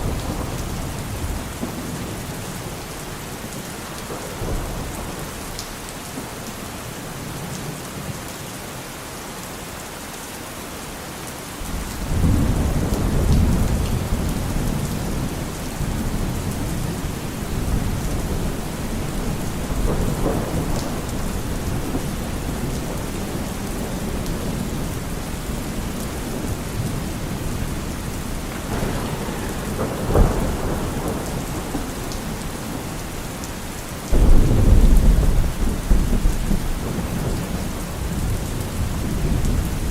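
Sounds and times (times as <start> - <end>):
thunder rumbling: 0.0 - 6.4, 11.6 - 39.9
heavy rain: 0.0 - 39.9
thunder crack: 11.7 - 39.9.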